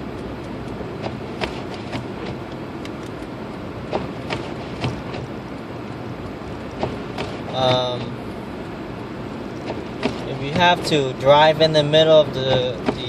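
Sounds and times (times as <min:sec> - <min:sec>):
car road noise driving through snow: 0:00.0 - 0:13.0.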